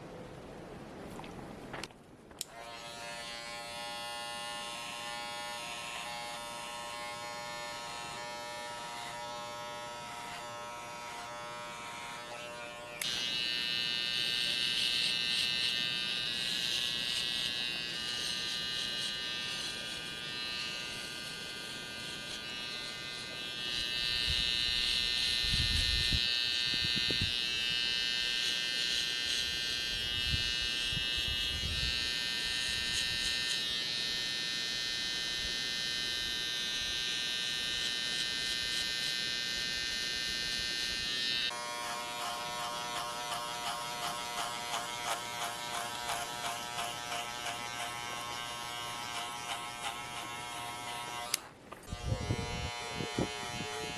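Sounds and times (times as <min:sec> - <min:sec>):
electric hair clippers buzzing: 0:02.4 - 0:53.9.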